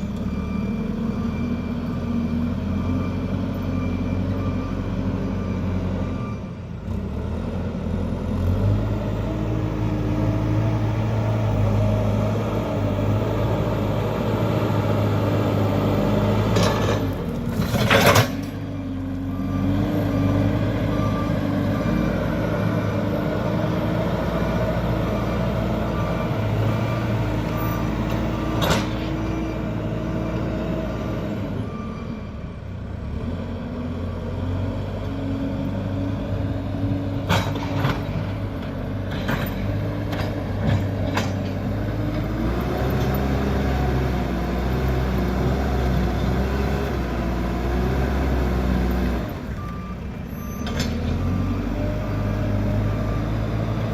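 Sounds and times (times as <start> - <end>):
reversing alarm beeping: 0.0 - 6.8, 18.7 - 32.7, 49.2 - 53.9
diesel engine working: 0.0 - 53.9.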